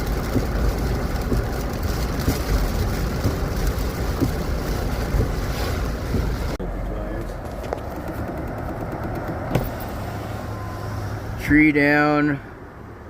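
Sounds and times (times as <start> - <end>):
steady low rumble: 0.0 - 11.5
small knocks: 7.4 - 9.8.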